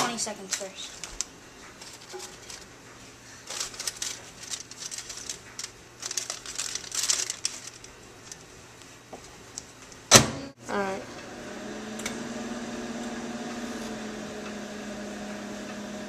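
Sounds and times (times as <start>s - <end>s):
packaging crinkling: 0.1s - 2.7s, 3.4s - 8.5s.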